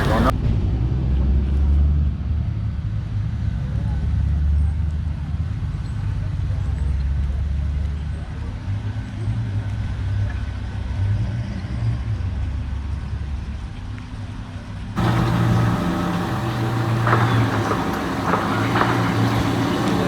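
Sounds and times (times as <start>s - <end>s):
car engine rumbling: 0.0s - 0.3s, 15.0s - 20.0s
short knocks: 15.0s - 20.0s.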